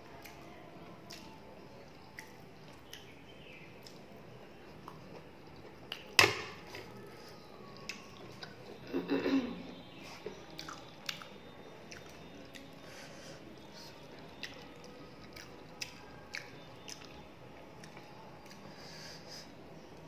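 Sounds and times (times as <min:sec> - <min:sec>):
person chewing food: 0:09.8 - 0:18.8.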